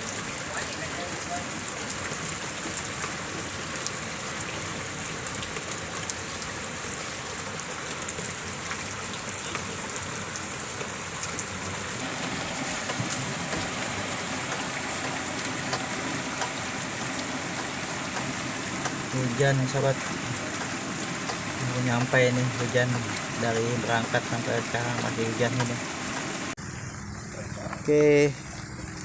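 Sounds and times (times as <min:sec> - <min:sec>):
rain falling: 0:00.0 - 0:29.0
raindrops pattering: 0:00.0 - 0:29.0.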